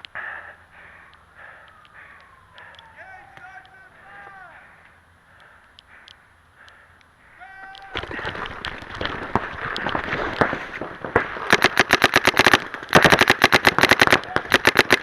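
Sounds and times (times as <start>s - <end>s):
paintball markers firing: 7.8s - 15.0s.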